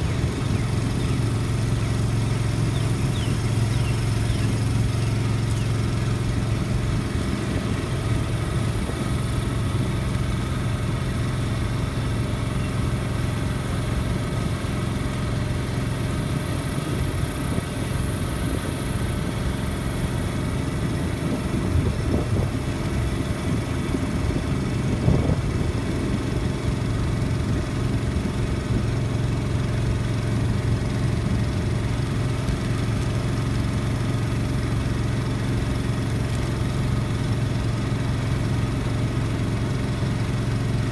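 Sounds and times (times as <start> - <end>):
engine idling: 0.0 - 40.9
engine knock: 0.0 - 40.9.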